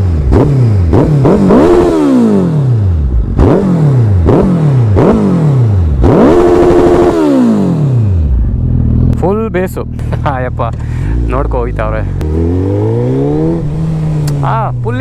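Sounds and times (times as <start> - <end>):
motorcycle engine revving: 0.0 - 15.0
motorcycle engine idling: 8.0 - 15.0.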